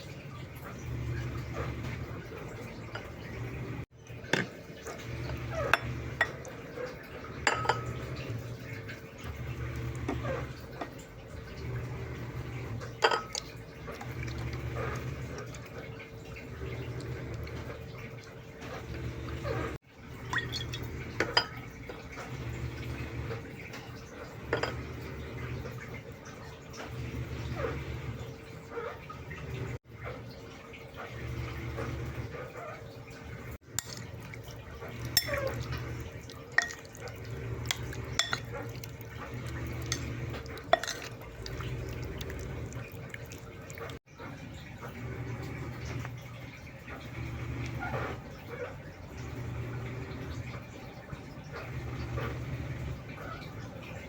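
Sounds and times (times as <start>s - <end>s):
dishes and utensils clinking: 0.6s - 11.1s, 12.7s - 15.9s, 18.6s - 25.1s, 33.7s - 44.0s
low steady hum: 33.1s - 54.0s.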